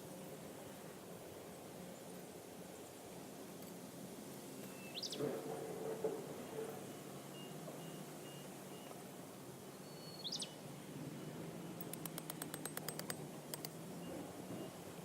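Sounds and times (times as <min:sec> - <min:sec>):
bird chirp: 0:09.7 - 0:10.6
sharp clicks: 0:11.8 - 0:13.8.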